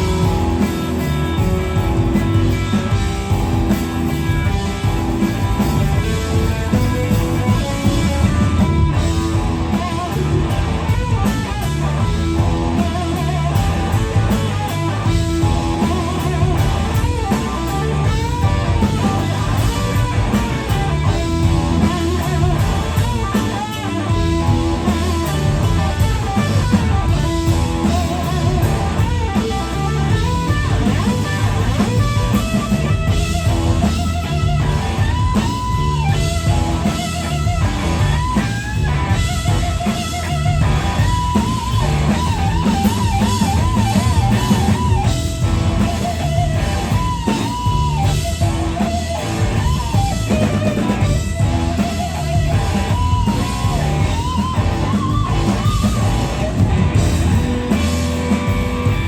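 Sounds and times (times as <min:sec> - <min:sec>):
blues-rock band playing: 0:00.0 - 0:59.0
electric guitar lead bending notes: 0:00.0 - 0:59.0.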